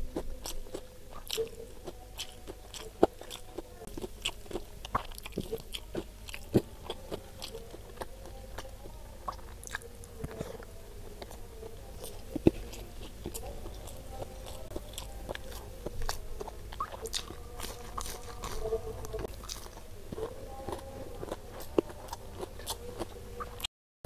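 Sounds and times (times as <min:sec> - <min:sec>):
crunchy chewing: 0:00.0 - 0:23.7.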